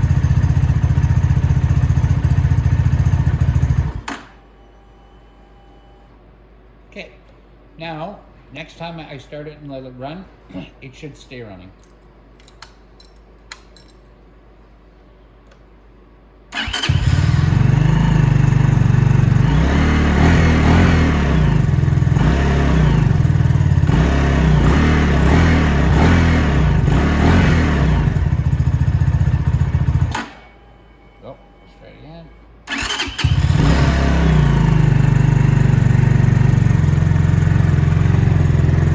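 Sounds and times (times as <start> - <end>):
motorcycle engine starting and revving: 0.0 - 4.2, 16.5 - 30.4, 32.7 - 38.9.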